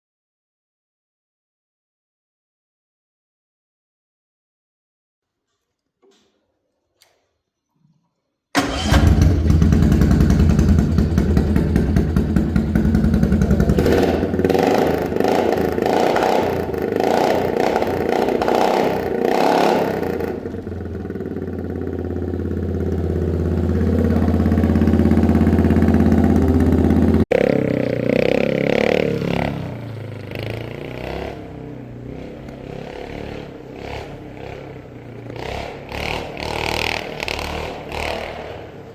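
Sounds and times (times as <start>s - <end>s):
engine running through muffler: 8.6s - 38.9s.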